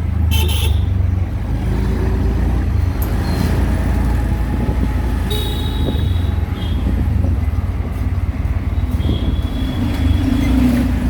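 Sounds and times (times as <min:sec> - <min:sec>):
engine and road rumble: 0:00.0 - 0:11.0
vehicle horn: 0:00.3 - 0:00.9, 0:05.3 - 0:06.9.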